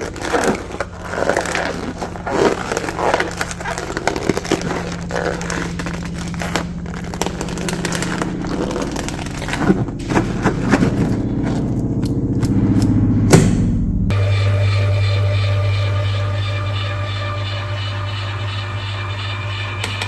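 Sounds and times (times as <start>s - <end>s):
electric grinder motor running: 0.0s - 11.1s, 14.1s - 20.0s
hard pieces crunching in jar: 0.0s - 11.6s
sharp knock: 13.3s - 13.8s.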